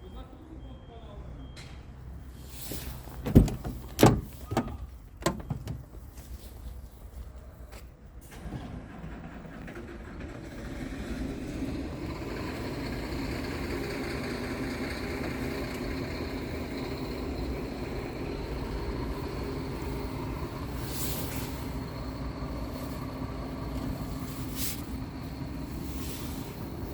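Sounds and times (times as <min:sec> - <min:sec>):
truck diesel engine running: 0:08.3 - 0:26.9.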